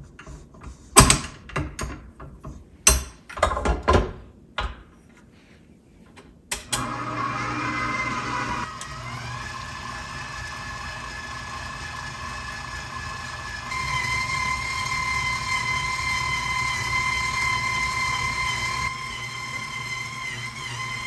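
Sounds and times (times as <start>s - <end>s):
electric motor whining: 6.7s - 21.0s.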